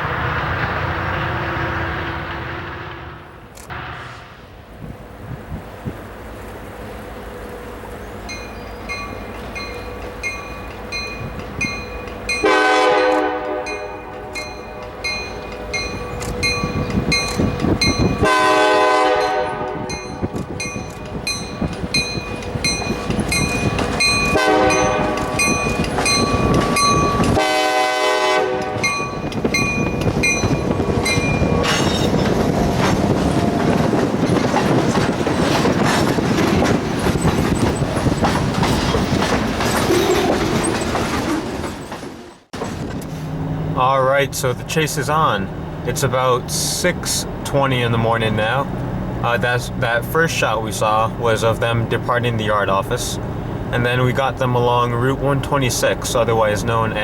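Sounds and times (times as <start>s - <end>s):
locomotive air horn: 1.2s - 4.6s, 12.4s - 16.2s, 18.2s - 20.7s, 24.3s - 25.5s, 27.2s - 29.0s
crossing bell ringing: 8.2s - 28.0s, 28.6s - 32.5s
freight cars rumbling and clacking: 13.4s - 18.4s, 19.3s - 27.5s, 28.5s - 57.0s.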